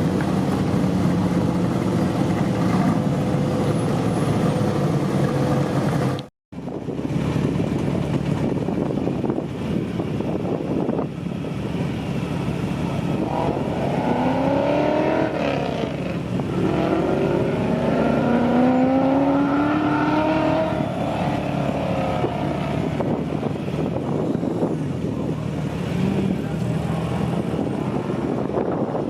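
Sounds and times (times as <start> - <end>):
race car accelerating: 13.0 - 24.7.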